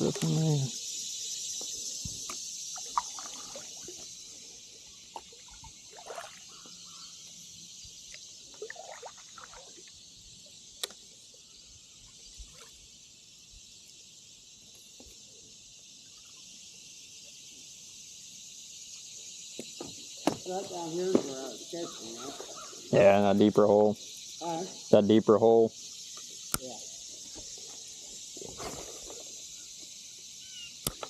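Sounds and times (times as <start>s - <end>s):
insect chorus: 0.0s - 31.0s
paddle splashing through water: 5.1s - 6.6s, 8.5s - 9.9s.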